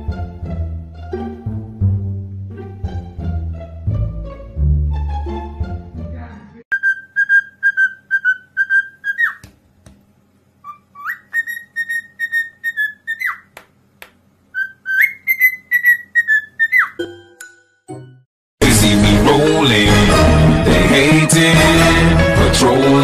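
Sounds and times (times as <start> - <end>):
parrot whistling a tune: 6.7 - 9.4, 10.6 - 13.5, 14.5 - 17.0.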